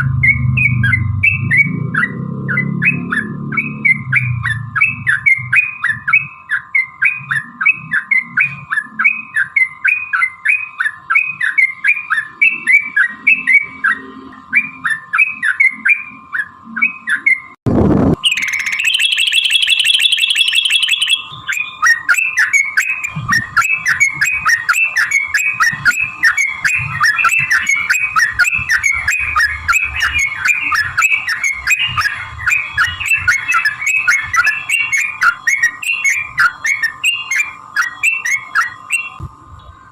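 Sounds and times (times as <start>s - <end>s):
fast high bird trill: 18.2s - 39.2s
bulbuls chattering: 18.3s - 39.4s.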